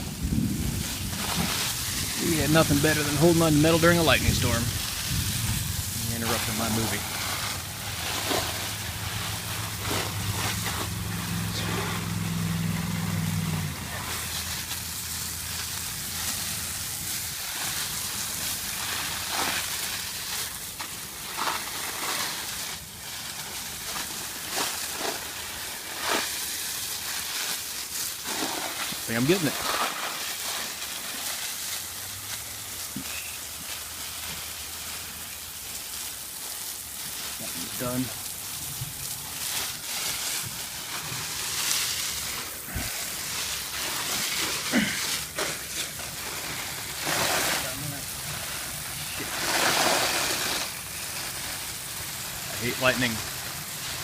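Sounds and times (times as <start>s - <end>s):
crackles and splashes: 0.0s - 54.0s
garden hose spraying hiss: 0.0s - 54.0s
rain: 0.0s - 54.0s
low hum: 6.9s - 15.6s.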